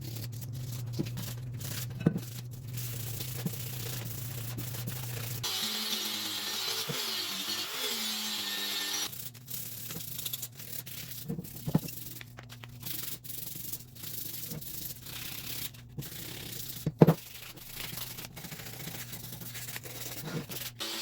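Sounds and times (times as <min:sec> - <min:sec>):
hand sanding strokes: 0:02.7 - 0:09.9.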